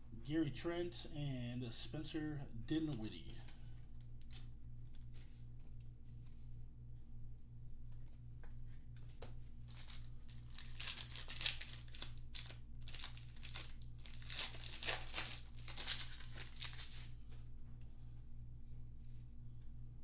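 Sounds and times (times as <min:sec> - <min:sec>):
wrapper tearing and crinkling: 0:04.2 - 0:04.5, 0:09.7 - 0:17.1.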